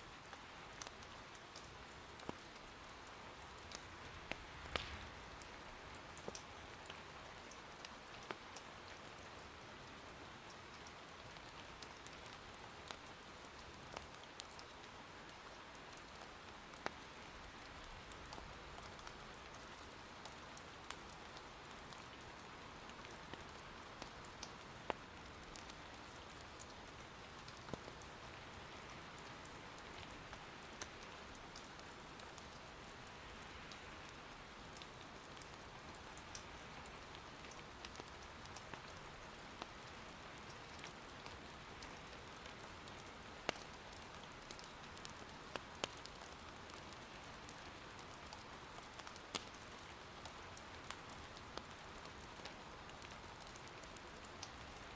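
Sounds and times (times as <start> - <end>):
soft rain patter: 0.0 - 54.9
wood fire popping: 3.7 - 7.0.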